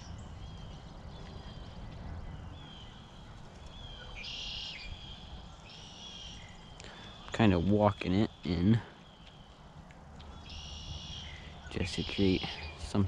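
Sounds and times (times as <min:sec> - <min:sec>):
whistled bird calls: 0:02.4 - 0:09.6, 0:10.2 - 0:13.0.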